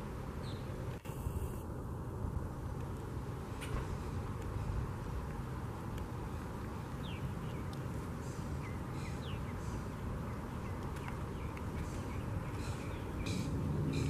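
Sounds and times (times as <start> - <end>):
steady low rumble: 0.0 - 14.0
small birds chirping: 0.4 - 0.8, 6.0 - 14.0.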